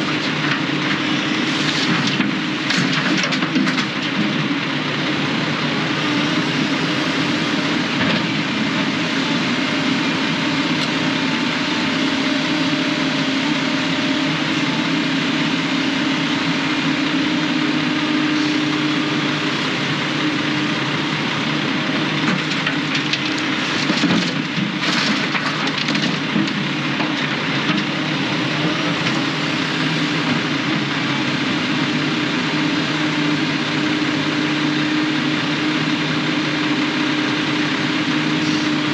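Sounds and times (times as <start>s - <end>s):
road and cab noise: 0.0s - 38.9s
truck engine drone: 0.0s - 38.9s.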